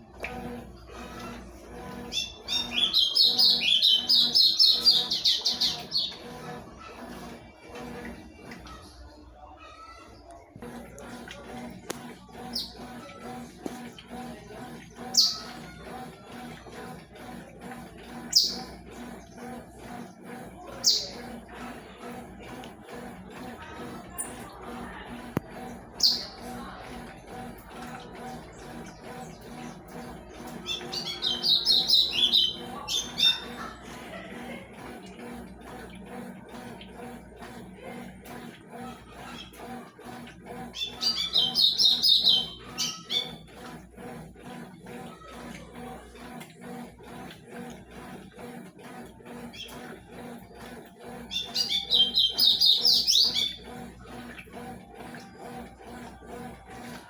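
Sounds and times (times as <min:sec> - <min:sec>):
washing machine running: 0:00.0 - 0:57.0
bird chirping rapidly: 0:02.2 - 0:06.2, 0:30.6 - 0:33.5, 0:40.8 - 0:43.4, 0:51.4 - 0:53.6.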